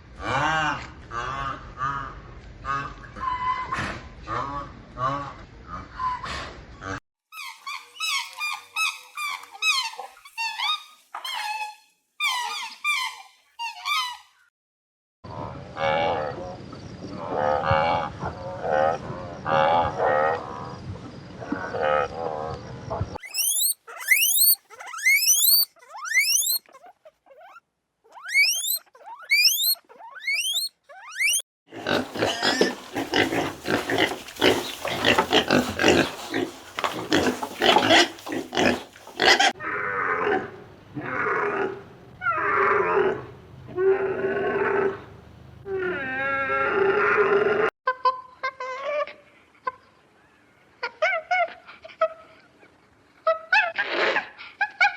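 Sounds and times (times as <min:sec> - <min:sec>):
rising whistled calls: 0:23.2 - 0:26.6, 0:28.3 - 0:31.4
high chirping: 0:23.2 - 0:26.7, 0:28.2 - 0:31.4
lower animal calls: 0:23.2 - 0:39.8
pigs grunting: 0:31.7 - 0:45.1.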